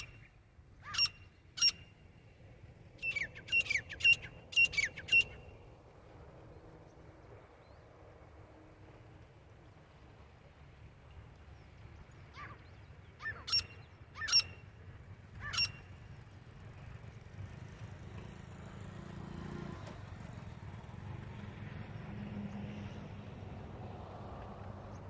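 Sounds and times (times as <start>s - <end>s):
bird calling sharp rising calls: 0.0s - 2.1s, 2.9s - 5.6s, 12.3s - 14.7s, 15.3s - 16.0s.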